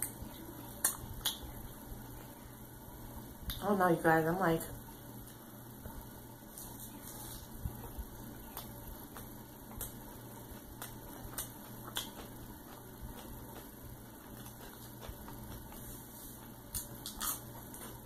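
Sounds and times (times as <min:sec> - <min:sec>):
steady low hum: 0:00.0 - 0:18.0
lettuce crunching: 0:06.5 - 0:18.0
wet chewing mouth sounds: 0:06.6 - 0:18.0.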